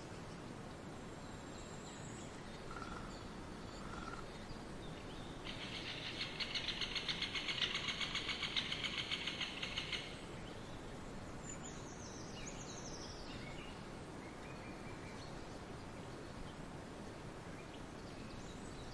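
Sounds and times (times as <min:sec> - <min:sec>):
outdoor background noise: 0:00.0 - 0:18.9
rapid bird trill: 0:05.4 - 0:10.2.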